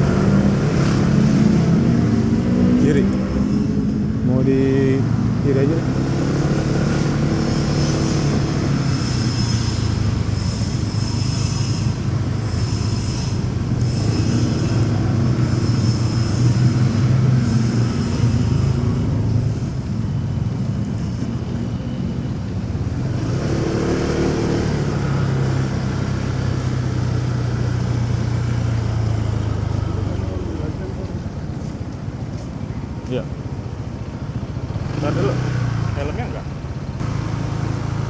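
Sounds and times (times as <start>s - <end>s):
road and wind noise: 0.0s - 38.0s
motorcycle engine running: 3.8s - 23.8s.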